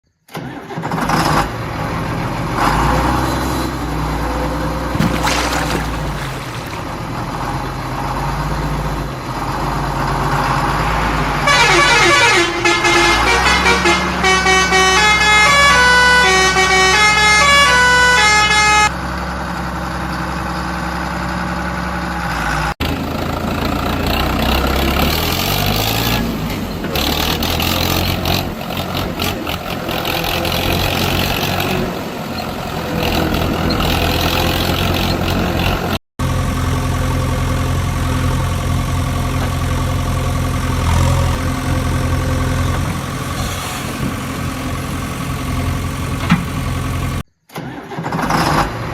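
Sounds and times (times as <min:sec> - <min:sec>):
heavy vehicle engines running: 0:00.4 - 0:47.2
musical horn tune: 0:11.4 - 0:18.9.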